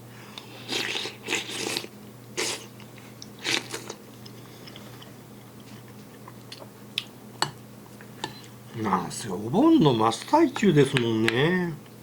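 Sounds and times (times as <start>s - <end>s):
steady low hum: 0.0s - 12.0s
man chewing food: 0.4s - 8.6s.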